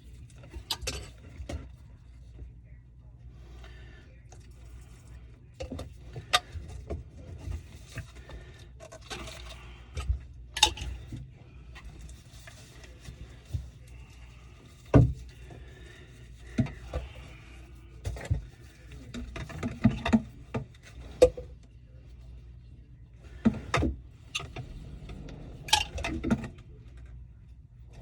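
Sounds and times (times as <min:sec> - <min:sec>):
steady low hum: 0:00.0 - 0:28.0
parts and tools clattering: 0:04.9 - 0:21.5, 0:23.4 - 0:26.7.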